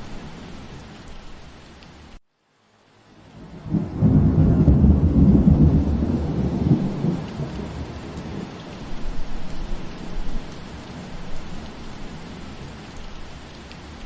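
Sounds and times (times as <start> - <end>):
steady rain: 0.0 - 14.0
deep roll of thunder: 3.4 - 10.5.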